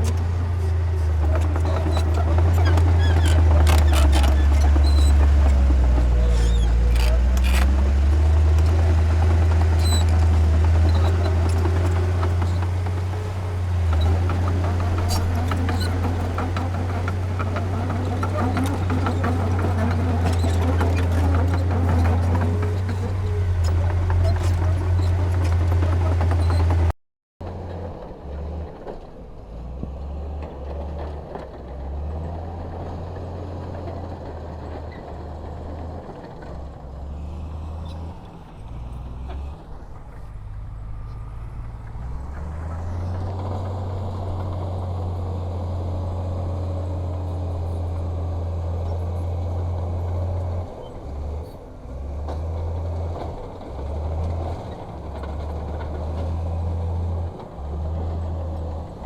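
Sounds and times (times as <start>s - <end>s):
heavy diesel machinery drone: 0.0s - 26.9s.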